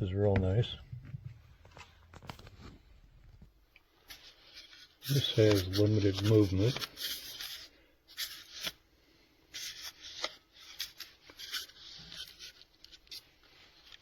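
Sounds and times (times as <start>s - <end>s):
faint rubbing and scraping: 0.0s - 8.8s, 9.5s - 14.0s.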